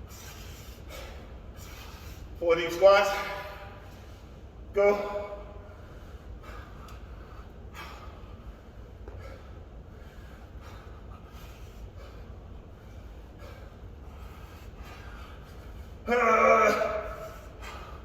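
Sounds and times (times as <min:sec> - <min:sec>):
man breathing hard: 0:00.0 - 0:02.4, 0:05.4 - 0:16.1, 0:17.0 - 0:18.0
steady low hum: 0:00.0 - 0:18.0.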